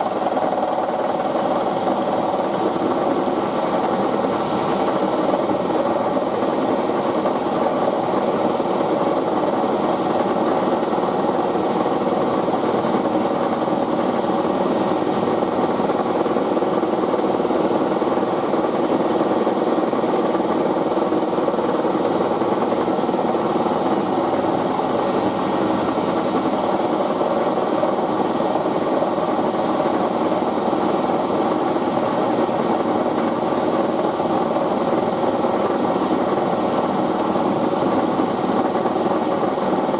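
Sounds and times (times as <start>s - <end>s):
milling machine running: 22.2s - 30.4s.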